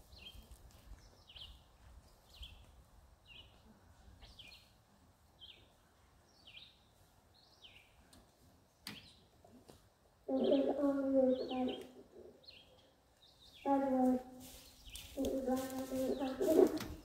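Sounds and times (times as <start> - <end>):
bird high chirp: 10.3 - 13.9, 14.5 - 17.0.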